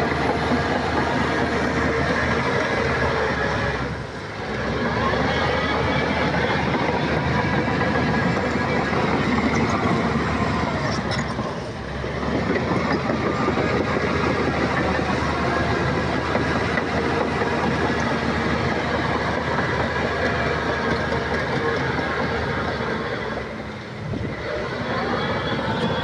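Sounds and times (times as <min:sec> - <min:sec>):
tracks clattering: 0:00.0 - 0:03.9, 0:05.1 - 0:24.0
bulldozer diesel engine running: 0:00.0 - 0:26.0.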